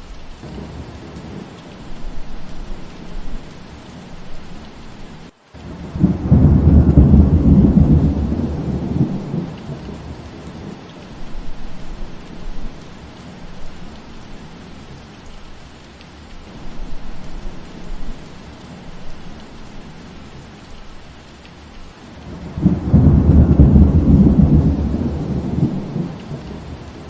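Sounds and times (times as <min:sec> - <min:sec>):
steady rain falling: 0:00.0 - 0:27.0
thunder rolling: 0:05.6 - 0:10.8, 0:22.2 - 0:27.0.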